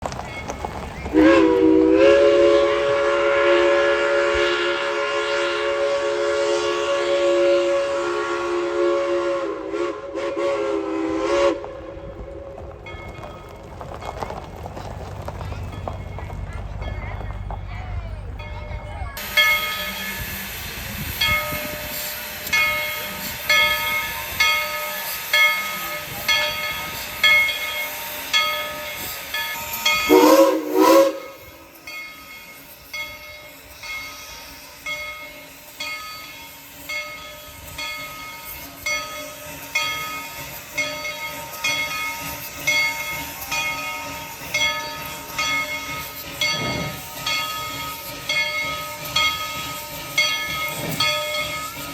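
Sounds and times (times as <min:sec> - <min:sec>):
locomotive bell ringing: 0:00.0 - 0:01.4, 0:12.0 - 0:51.9
steam whistle blast: 0:01.1 - 0:12.6, 0:30.0 - 0:31.8
steam hissing: 0:19.2 - 0:51.9.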